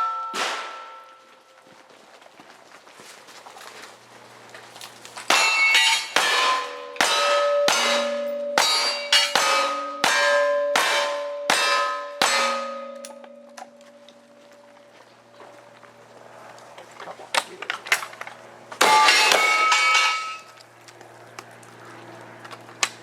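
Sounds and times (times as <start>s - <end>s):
gunshots: 0.0s - 1.0s
steel target clanging: 0.0s - 1.2s, 5.3s - 14.3s, 18.8s - 20.5s.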